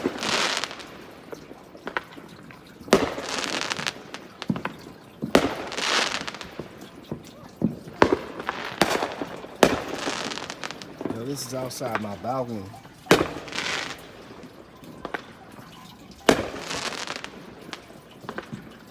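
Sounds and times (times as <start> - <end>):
fireworks crackling hiss: 0.0 - 2.2, 2.9 - 18.7
fireworks banging: 1.9 - 18.8.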